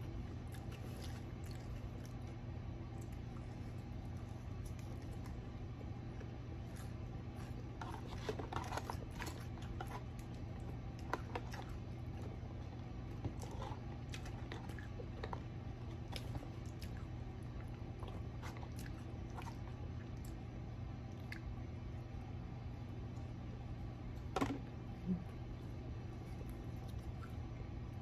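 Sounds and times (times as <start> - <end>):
chewing and crunching fried food: 0.0 - 28.0
low steady hum: 0.0 - 28.0.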